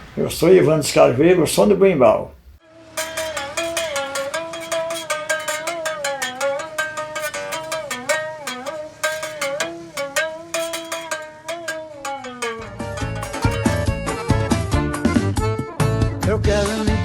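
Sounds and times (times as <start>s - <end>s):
berimbau wire strikes: 2.6s - 15.0s.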